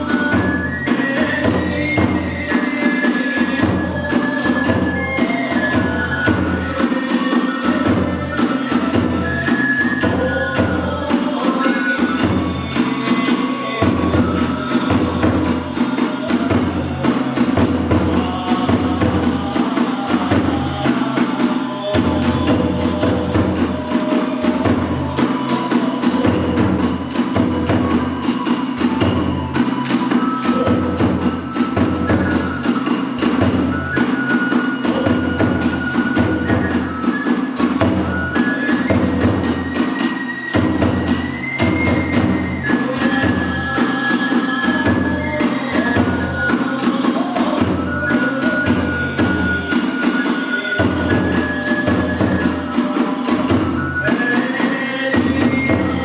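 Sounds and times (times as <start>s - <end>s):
bamboo flute melody: 0.0s - 56.0s
large drum steady beat: 0.0s - 56.0s.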